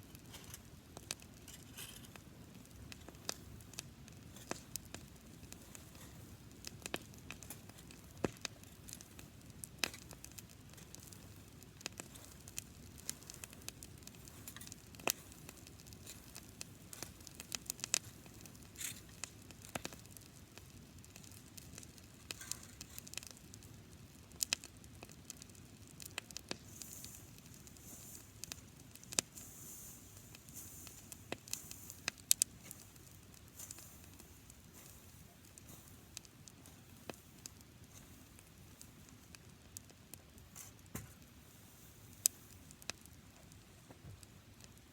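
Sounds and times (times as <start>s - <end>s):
grass fire crackling and popping: 0.0s - 44.9s
low rush of flame: 0.1s - 44.9s
faint high hiss: 26.6s - 43.9s.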